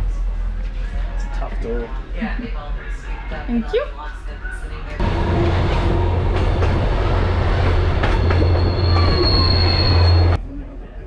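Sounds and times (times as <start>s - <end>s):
train rumbling on rails: 0.0s - 11.0s
high wheel squeal: 7.7s - 10.4s.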